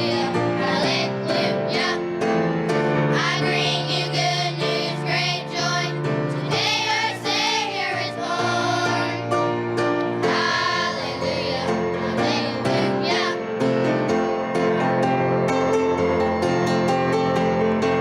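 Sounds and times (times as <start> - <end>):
children's choir singing: 0.0 - 14.0
instrumental accompaniment: 0.0 - 18.0.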